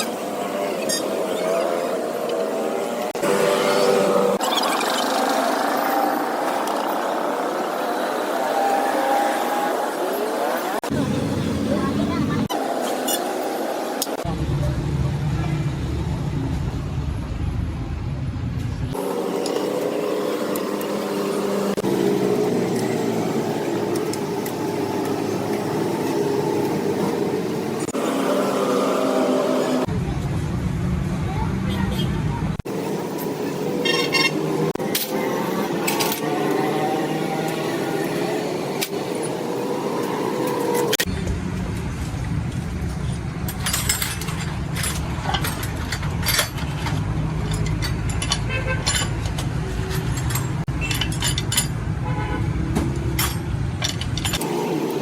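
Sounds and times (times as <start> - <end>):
metallic clinks of tools: 43.5 - 51.8.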